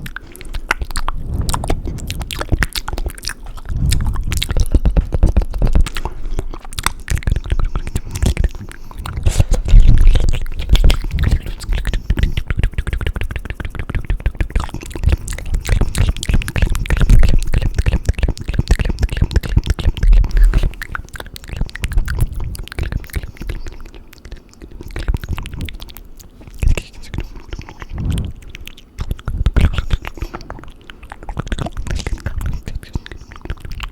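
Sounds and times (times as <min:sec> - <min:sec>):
wet mouth clicks and smacks: 0:00.0 - 0:33.9
low thumps: 0:01.0 - 0:05.9, 0:28.0 - 0:28.4.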